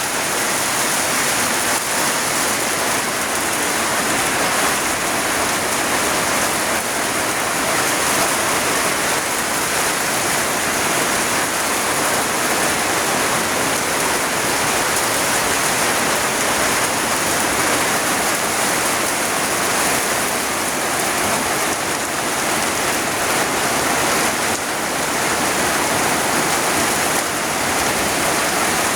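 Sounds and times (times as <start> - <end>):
heavy rain in strong wind: 0.0 - 28.9.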